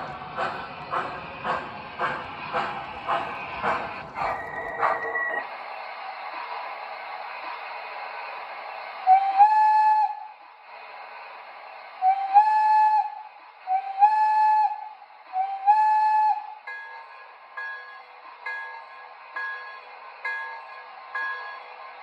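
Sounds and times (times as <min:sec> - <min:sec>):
locomotive running sound: 0:00.0 - 0:22.0
model train whistle blasts: 0:09.1 - 0:10.2.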